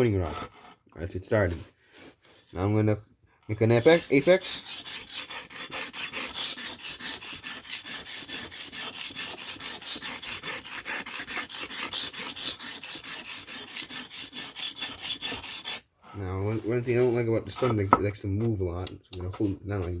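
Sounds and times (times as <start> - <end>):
knife scraping on whetstone: 1.9 - 2.6, 3.6 - 17.9.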